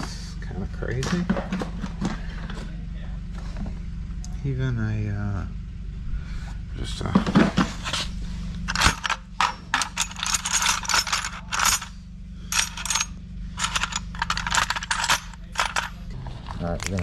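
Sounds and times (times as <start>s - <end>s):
steady low hum: 0.0s - 17.0s
metal tools clicking and rattling: 8.7s - 11.9s, 12.5s - 16.0s.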